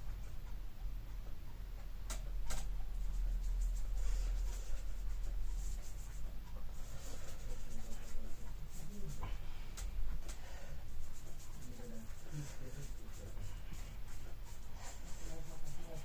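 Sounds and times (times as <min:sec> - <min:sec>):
paintbrush scratching on surface: 0:03.0 - 0:09.4, 0:10.2 - 0:16.0.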